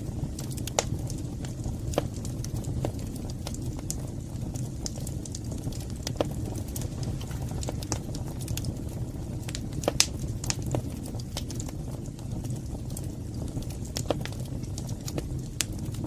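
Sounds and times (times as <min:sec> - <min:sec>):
fire crackling and popping: 0:00.0 - 0:16.0
wood fire rushing: 0:00.0 - 0:16.0.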